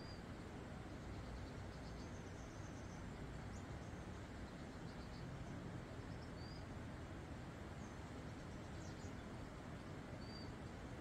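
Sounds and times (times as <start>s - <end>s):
faint high bird chirps: 0.0s - 0.3s, 6.0s - 6.7s, 10.2s - 10.6s
outdoor background noise: 0.0s - 11.0s.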